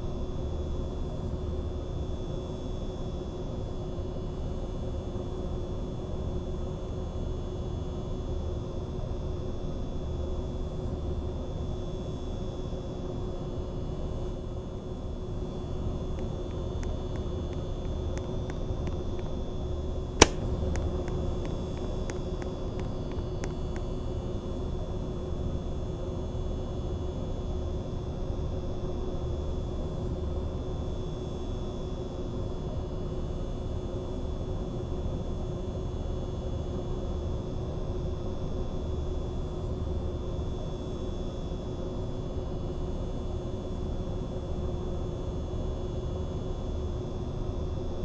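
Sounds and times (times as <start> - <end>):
sharp click: 20.2 - 23.6
ceiling fan motor humming: 20.2 - 23.8.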